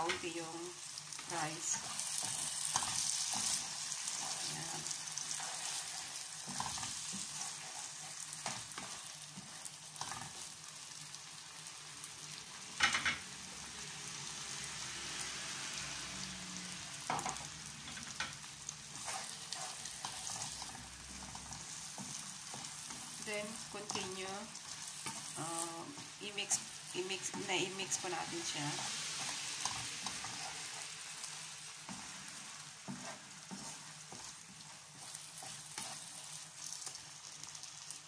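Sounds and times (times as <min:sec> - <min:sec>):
food sizzling in a frying pan: 0:00.0 - 0:38.0
spatula scraping a pan: 0:01.1 - 0:10.5, 0:17.1 - 0:26.6, 0:27.2 - 0:37.9.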